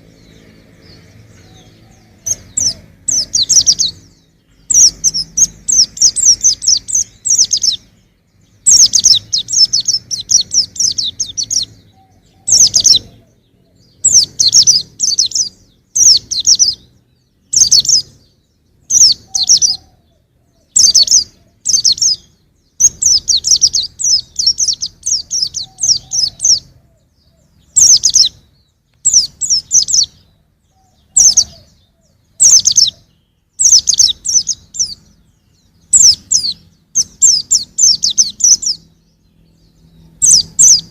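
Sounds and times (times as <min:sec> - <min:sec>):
bird twittering: 0:00.0 - 0:40.9.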